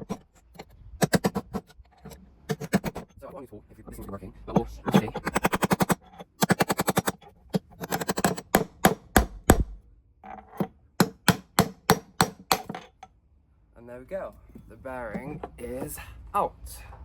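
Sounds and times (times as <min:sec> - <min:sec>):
hammer striking metal: 0:07.8 - 0:09.8, 0:11.0 - 0:12.9.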